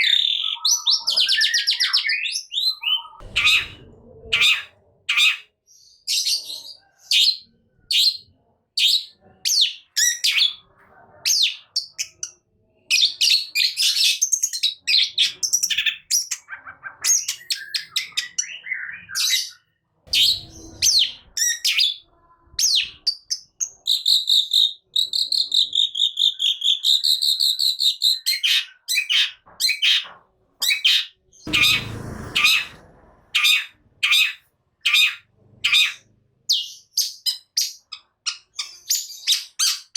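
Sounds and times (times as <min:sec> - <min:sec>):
harsh noisy burst: 0:31.5 - 0:34.0.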